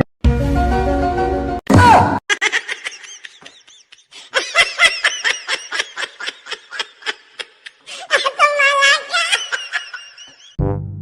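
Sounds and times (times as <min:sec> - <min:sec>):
music: 0:00.2 - 0:01.6, 0:10.6 - 0:11.0
person laughing hard: 0:02.3 - 0:10.6.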